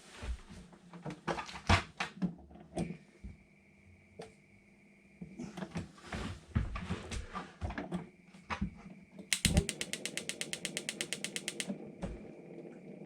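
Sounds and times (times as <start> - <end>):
spark igniter clicking rapidly: 9.3 - 11.7.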